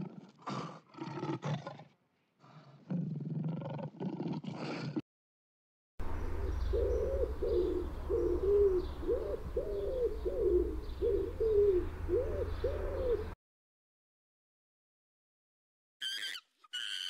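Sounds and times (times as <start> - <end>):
pigeon cooing: 6.3 - 13.4.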